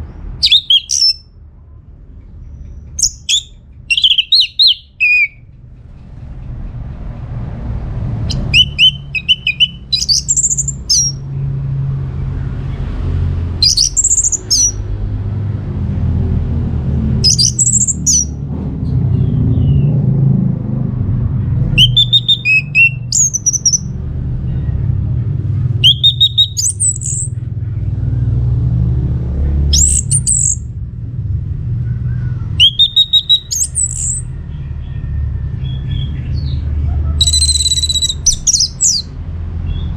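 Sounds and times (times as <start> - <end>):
steady low rumble: 0.0 - 39.9
thrush singing: 0.4 - 1.2, 3.0 - 5.4, 8.3 - 11.2, 13.6 - 14.8, 17.2 - 18.3, 21.8 - 23.9, 25.8 - 27.3, 32.5 - 34.3, 37.2 - 39.2.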